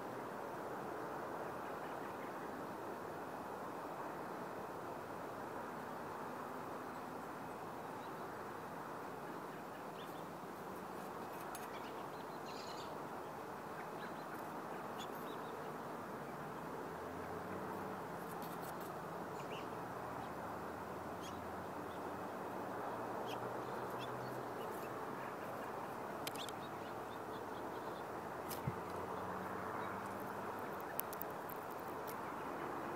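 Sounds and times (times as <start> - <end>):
steady outdoor hiss: 0.0 - 32.9
small birds chirping: 11.0 - 16.6, 18.2 - 20.4, 21.1 - 22.1, 22.8 - 32.4.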